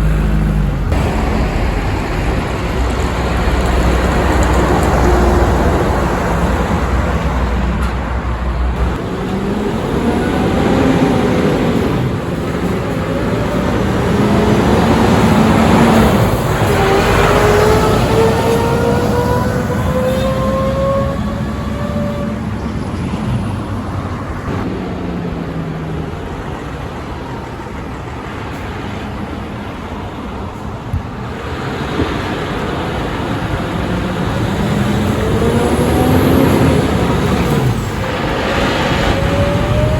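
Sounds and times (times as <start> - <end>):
low engine hum: 0.0 - 22.3
heavy trucks passing: 0.0 - 39.9.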